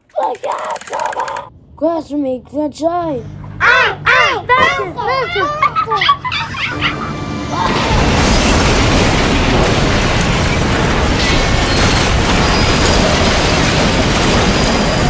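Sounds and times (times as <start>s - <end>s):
toy trains rumbling on track: 0.2s - 1.5s, 6.6s - 15.0s.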